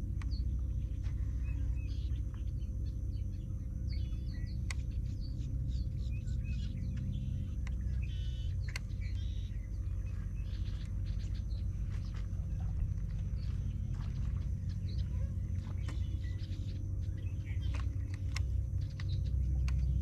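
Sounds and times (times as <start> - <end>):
faint hum: 0.0 - 20.0
low rumble: 0.0 - 20.0
wild birds chirping: 0.0 - 20.0
sharp clicks: 4.4 - 5.2, 6.9 - 9.4, 17.5 - 20.0.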